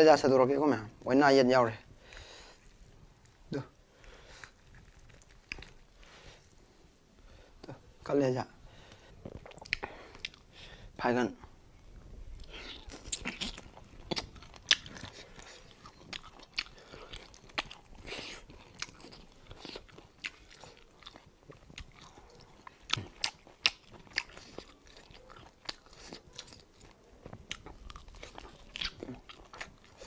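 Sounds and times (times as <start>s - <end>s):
chewing meat off the bone: 4.0s - 6.4s, 8.9s - 10.5s, 12.4s - 30.0s
wet mouth clicks: 9.3s - 10.4s, 12.4s - 20.8s.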